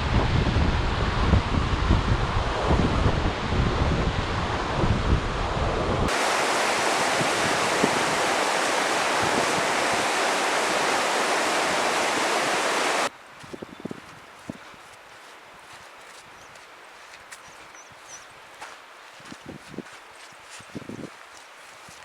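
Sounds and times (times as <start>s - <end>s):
wind buffeting microphone: 0.0s - 14.8s, 19.2s - 21.2s
fast-flowing stream water: 6.1s - 13.1s.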